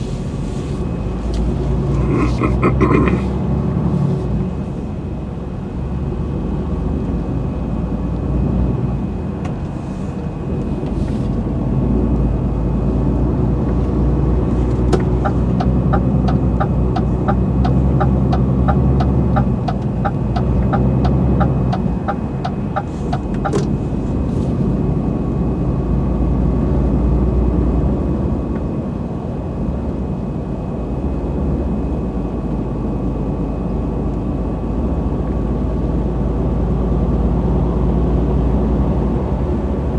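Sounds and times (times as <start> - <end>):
truck engine and road rumble: 0.0 - 39.9
regular ticking: 14.8 - 23.8.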